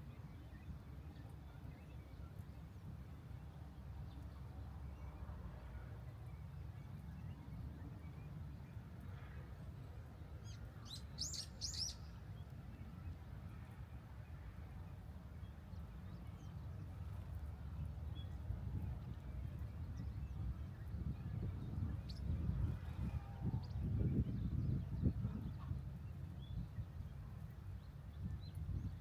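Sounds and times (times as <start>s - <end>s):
bird chirping: 10.8s - 12.1s.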